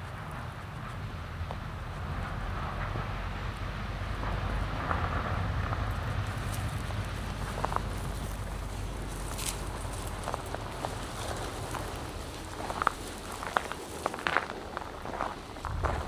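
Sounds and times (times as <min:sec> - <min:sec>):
wind rumbling on microphone: 0:00.0 - 0:16.0
footsteps on gravel: 0:06.0 - 0:16.0.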